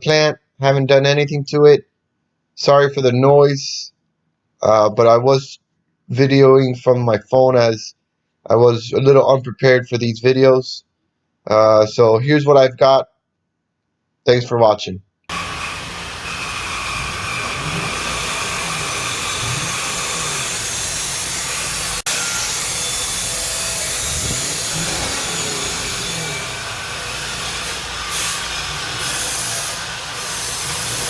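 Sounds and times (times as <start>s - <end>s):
car engine revving: 15.3s - 22.1s, 22.8s - 31.0s.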